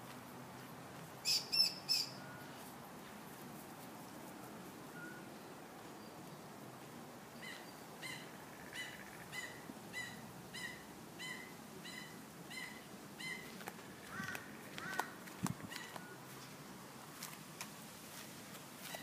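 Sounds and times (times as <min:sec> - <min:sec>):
faint outdoor background noise: 0:00.0 - 0:19.0
bird calling: 0:01.2 - 0:02.6, 0:07.4 - 0:16.4.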